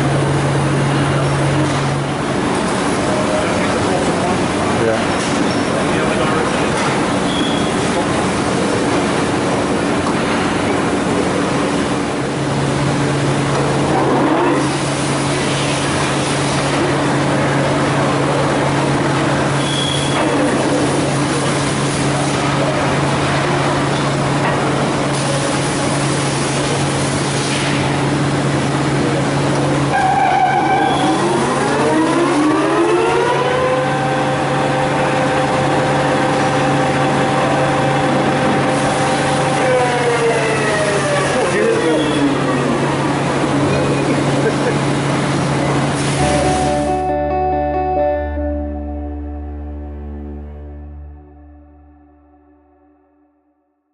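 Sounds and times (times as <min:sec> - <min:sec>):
rising machine whine: 0:30.0 - 0:41.5, 0:46.2 - 0:53.5
lathe machine hum: 0:31.1 - 0:47.0.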